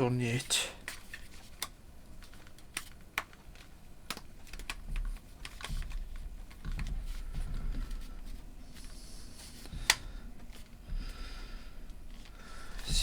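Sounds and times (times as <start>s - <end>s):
plastic clicks and taps: 1.6s - 7.0s.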